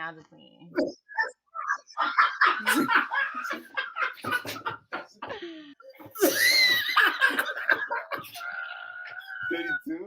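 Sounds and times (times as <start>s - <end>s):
person laughing: 2.0s - 5.3s, 6.1s - 8.4s.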